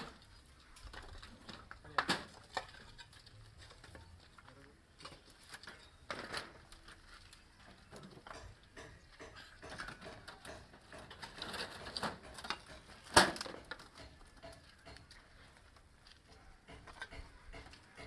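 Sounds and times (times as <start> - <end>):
knocking and clattering: 8.2 - 15.1, 16.6 - 18.0.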